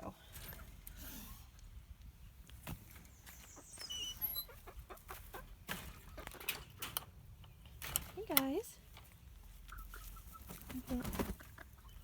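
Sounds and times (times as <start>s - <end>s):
chickens clucking: 0.0s - 12.0s
chick peeps: 3.1s - 6.5s, 9.4s - 12.0s.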